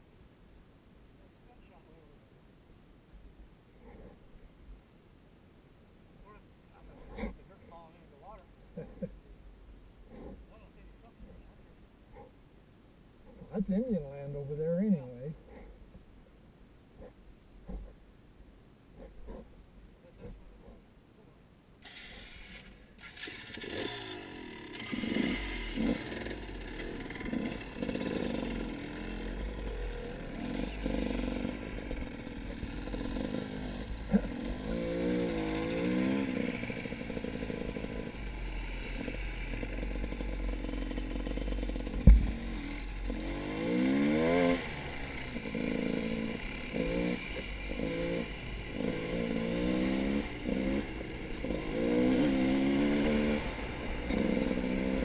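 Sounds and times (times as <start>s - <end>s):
engine revving: 21.9s - 55.0s
low rumble: 36.4s - 43.7s
sharp knock: 42.0s - 42.7s.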